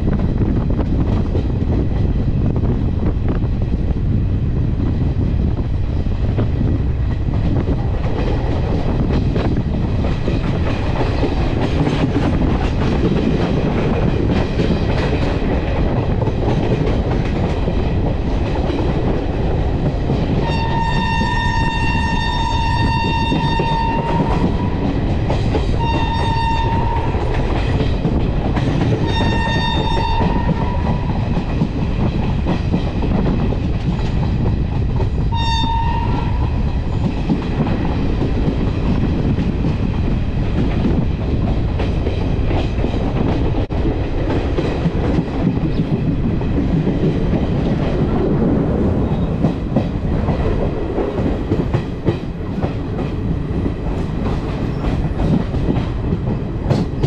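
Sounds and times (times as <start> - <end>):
train rumble and wheel clatter: 0.0 - 57.0
locomotive horn blasts: 20.4 - 24.5, 25.8 - 27.2, 29.0 - 30.8, 35.3 - 36.4.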